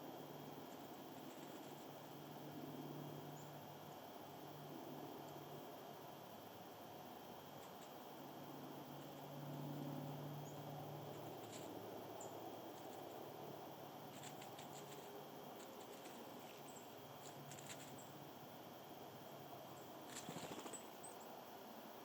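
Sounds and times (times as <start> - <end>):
quiet hiss: 0.0 - 22.0
soft clicks and scratches: 11.2 - 11.8, 14.1 - 18.1.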